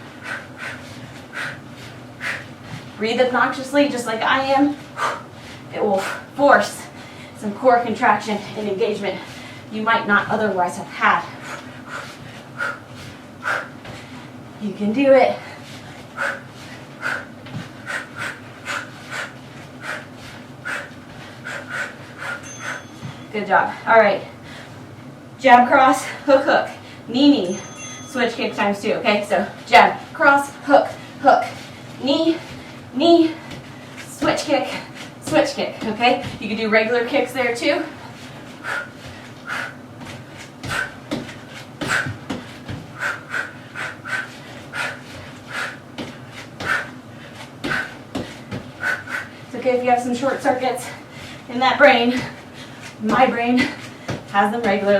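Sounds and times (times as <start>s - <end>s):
person panting hard: 0.0s - 2.9s, 4.8s - 7.4s, 11.3s - 14.4s, 15.4s - 23.2s, 38.0s - 49.5s, 52.2s - 54.3s.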